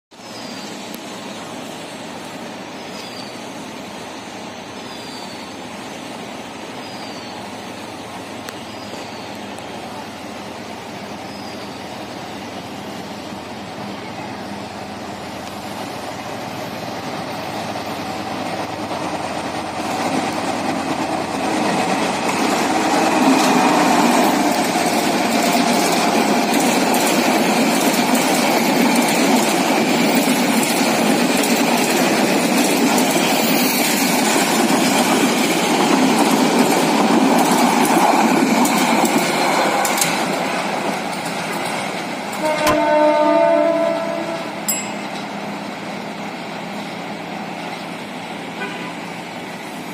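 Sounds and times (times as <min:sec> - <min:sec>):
diesel locomotive engine: 0:00.1 - 0:49.9
train wheels rumbling: 0:00.3 - 0:49.9
wheels clattering over rail joints: 0:18.6 - 0:43.0.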